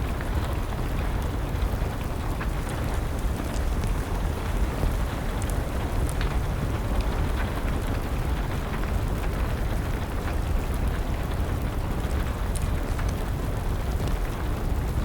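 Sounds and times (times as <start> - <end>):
steady rain: 0.0 - 15.0
wood fire crackling: 0.0 - 15.0.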